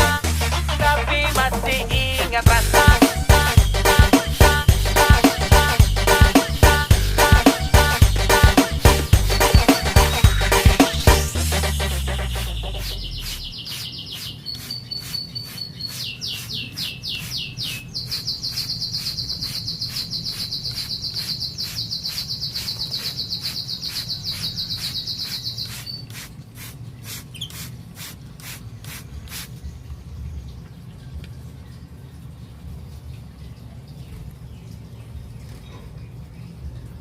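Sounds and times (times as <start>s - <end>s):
canary singing rapid trills: 6.2s - 27.7s
faint bird chips: 12.2s - 29.6s.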